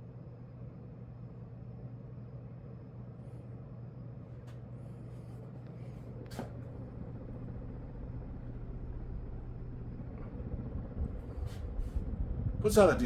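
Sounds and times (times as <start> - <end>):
ceiling fan motor hum: 0.0 - 13.0
rush of air: 7.2 - 12.9.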